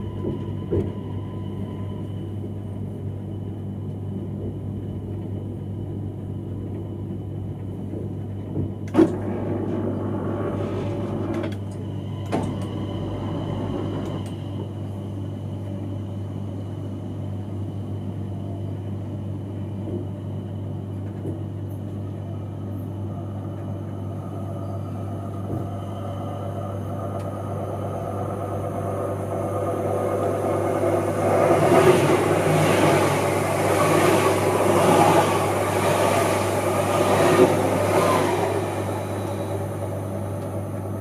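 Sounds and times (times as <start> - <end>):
train hum and rumble: 0.0 - 41.0
train rattling: 24.9 - 41.0.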